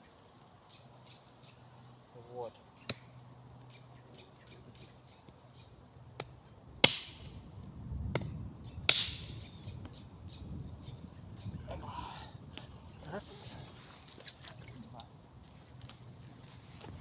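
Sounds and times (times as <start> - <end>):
hatchet chopping wood: 6.2 - 7.3, 8.0 - 10.0.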